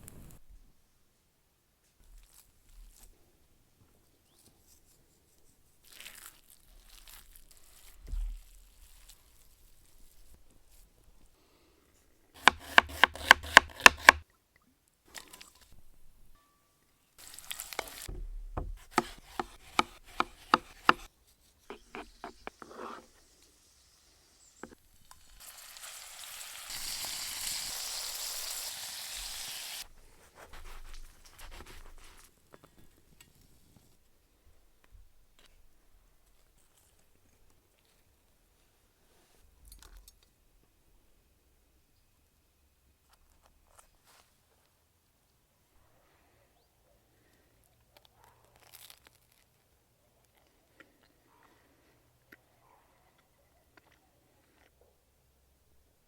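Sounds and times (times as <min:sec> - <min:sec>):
packaging crinkling and tearing: 0:05.8 - 0:10.2, 0:17.2 - 0:18.1, 0:48.4 - 0:49.7
food sizzling in a hot pan: 0:22.2 - 0:29.9.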